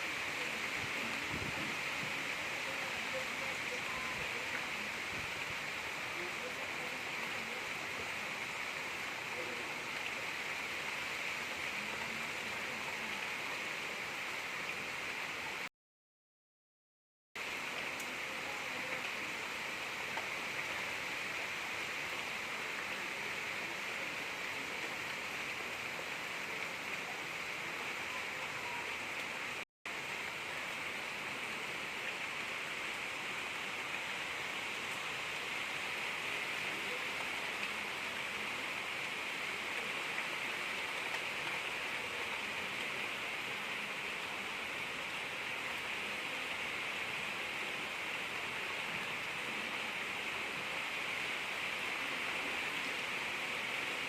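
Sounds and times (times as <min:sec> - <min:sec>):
gentle rain falling: 0:00.0 - 0:15.7, 0:17.4 - 0:54.0.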